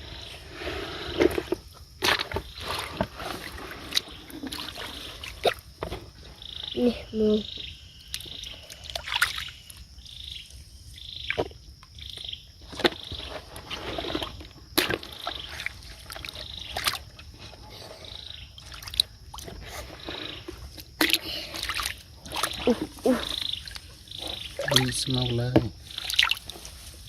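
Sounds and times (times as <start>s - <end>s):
frogs chirping: 0.0s - 27.0s
water splashing: 21.0s - 26.7s.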